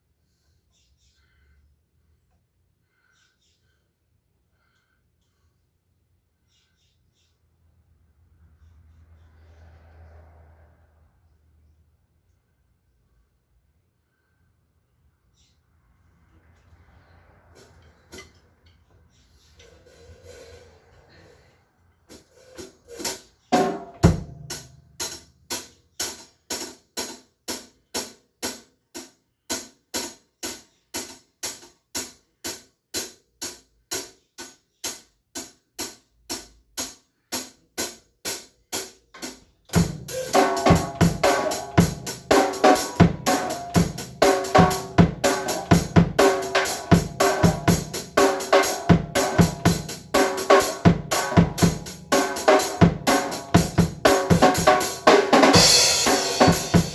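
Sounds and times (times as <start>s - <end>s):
drum beat with bass drum and snare: 23.0s - 28.6s, 35.8s - 56.9s
hi-hat ticking: 39.8s - 56.9s.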